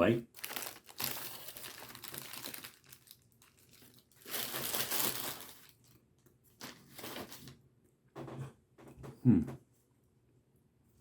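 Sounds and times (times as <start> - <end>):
paper wrapper crinkling: 0.3 - 7.6.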